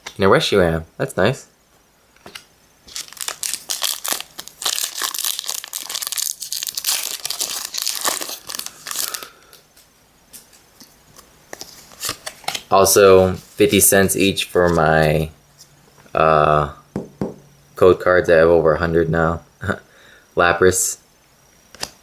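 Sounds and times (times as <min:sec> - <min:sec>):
plastic wrapper tearing and crinkling: 0:02.2 - 0:10.6, 0:11.5 - 0:12.7.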